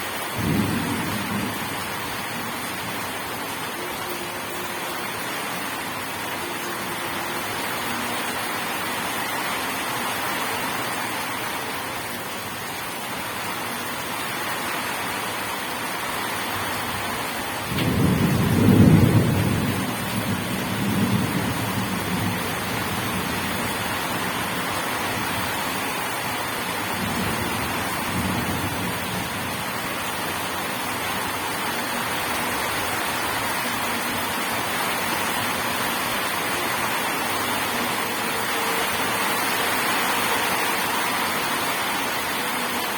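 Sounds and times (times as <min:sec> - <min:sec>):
heavy rain: 0:00.0 - 0:42.9
thunder rumbling: 0:00.3 - 0:06.9, 0:17.6 - 0:36.5.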